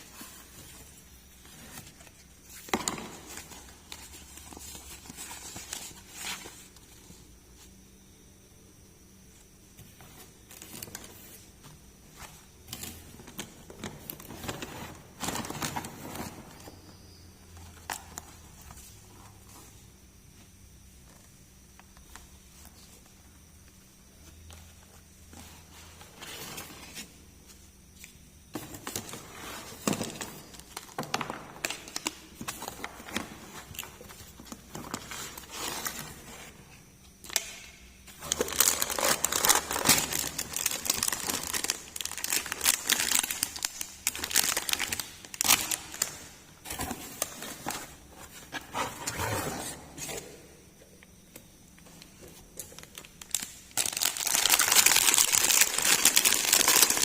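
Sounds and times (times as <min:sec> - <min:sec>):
packaging crinkling and tearing: 0:38.2 - 0:46.2, 0:52.6 - 0:57.0.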